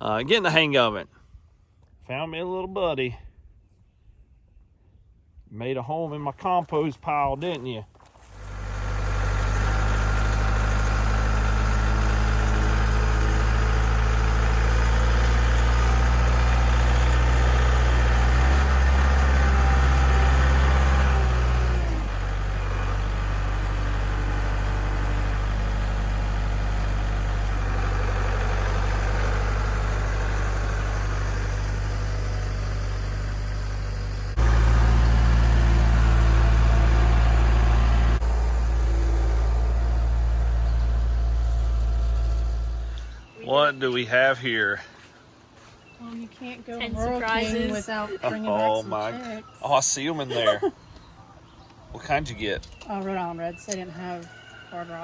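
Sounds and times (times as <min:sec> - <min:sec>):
tractor diesel engine running: 0:08.2 - 0:44.0.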